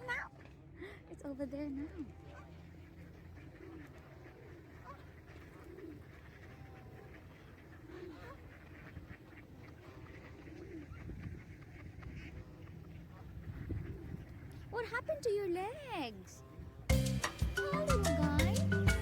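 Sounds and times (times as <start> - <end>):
pigeons cooing: 1.8 - 15.0, 17.2 - 19.0.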